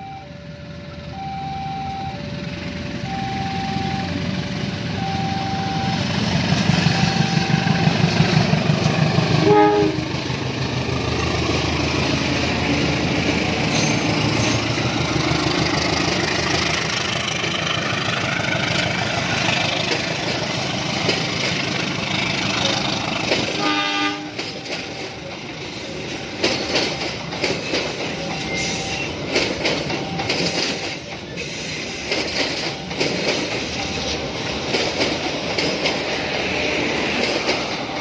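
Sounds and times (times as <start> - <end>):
crossing warning bell: 0.0 - 8.6, 12.6 - 18.0, 18.6 - 37.4
train passing: 0.0 - 38.0
wheel-on-rail noise: 5.9 - 38.0
train horn: 9.4 - 10.2, 23.5 - 24.5.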